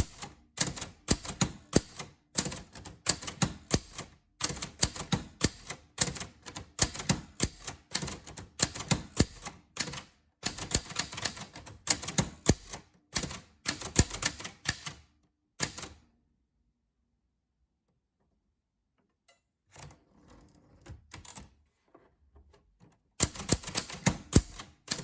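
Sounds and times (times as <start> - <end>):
typewriter keys striking: 0.0 - 15.0, 23.2 - 25.0.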